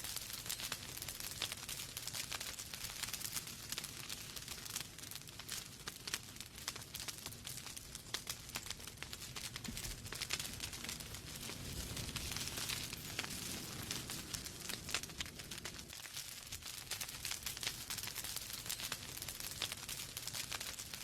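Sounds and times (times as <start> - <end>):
logs crackling in fireplace: 0.0 - 21.0.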